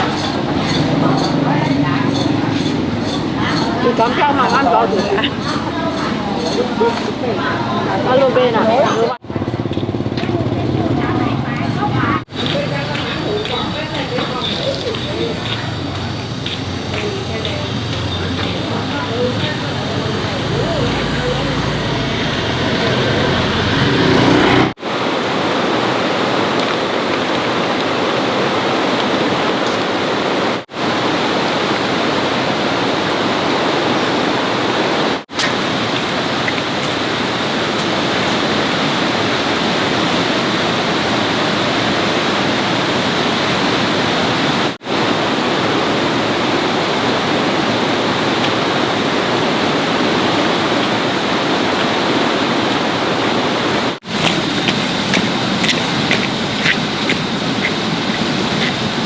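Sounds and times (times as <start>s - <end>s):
loud rushing noise: 15.3s - 25.8s.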